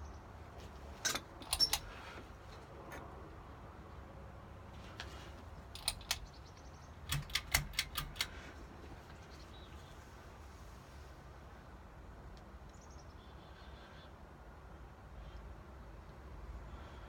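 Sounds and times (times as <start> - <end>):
ceiling fan pull chain clicks: 1.0 - 2.0, 5.6 - 6.4, 7.0 - 8.4.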